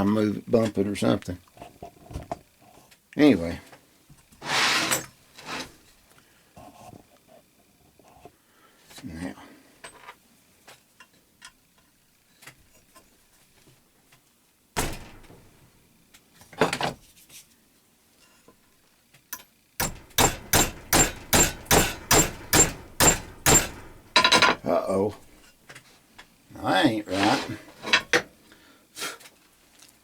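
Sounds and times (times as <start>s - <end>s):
hammer tapping metal: 14.8s - 15.7s, 19.8s - 25.4s
metal knocks: 14.8s - 15.7s, 19.8s - 25.4s.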